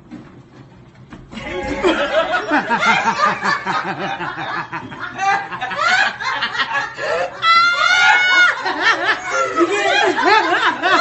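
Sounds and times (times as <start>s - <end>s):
people laughing: 1.4s - 11.0s.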